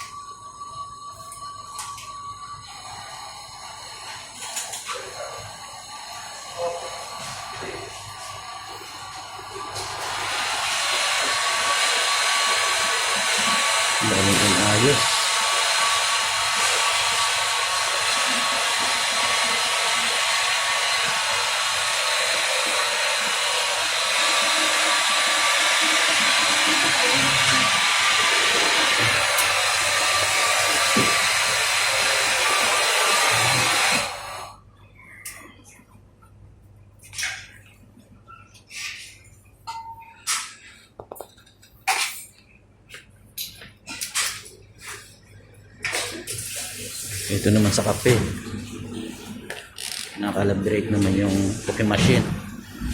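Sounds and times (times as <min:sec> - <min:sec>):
blower motor rushing hiss: 0:00.0 - 0:34.6, 0:46.2 - 0:52.9.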